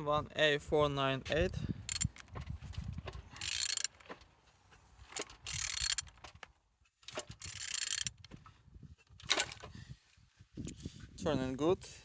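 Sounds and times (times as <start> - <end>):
ratchet wrench clicking: 1.9 - 2.3, 3.4 - 4.0, 5.2 - 6.2, 7.3 - 8.3
scattered clicks and knocks: 1.9 - 4.3, 5.1 - 8.5.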